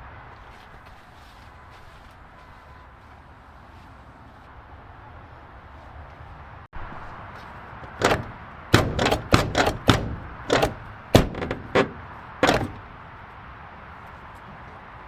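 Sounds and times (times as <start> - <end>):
sharp knocks and clanks: 7.8 - 13.0.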